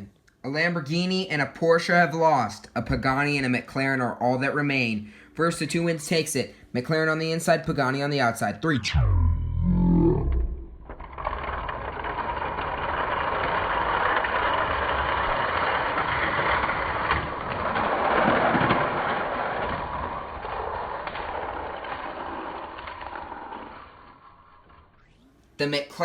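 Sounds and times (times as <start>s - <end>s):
toy cars rolling on plastic track: 10.9s - 25.0s.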